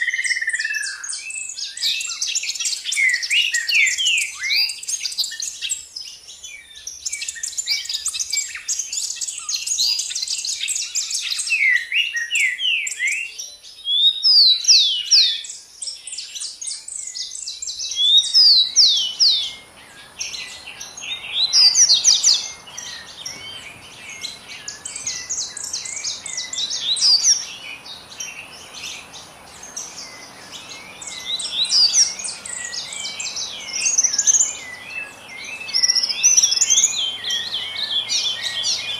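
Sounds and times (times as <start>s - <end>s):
small birds chirping: 0.0s - 38.9s
faint high hiss: 12.3s - 38.9s.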